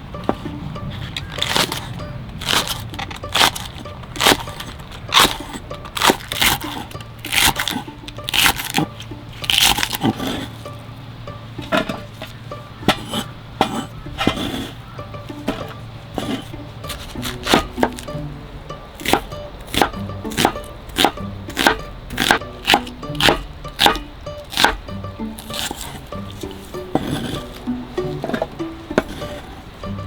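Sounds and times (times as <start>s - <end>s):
soft background music: 0.0s - 30.0s
knife cutting on cutting board: 1.1s - 8.9s, 9.5s - 10.6s, 12.9s - 14.8s, 15.5s - 18.1s, 19.0s - 24.8s, 25.4s - 29.6s.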